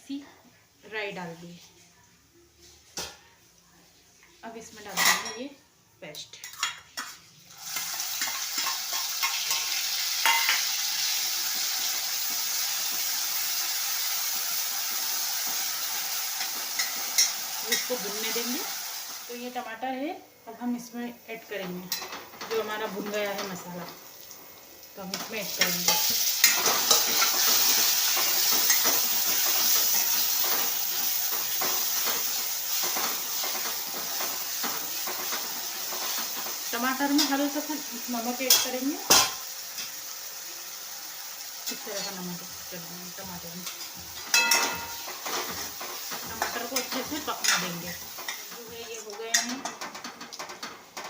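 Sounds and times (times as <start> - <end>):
spoon scraping a pan: 6.4 - 13.1, 14.4 - 18.5, 25.1 - 37.5, 43.6 - 51.0
paste sizzling in hot oil: 7.4 - 19.5, 22.6 - 49.7.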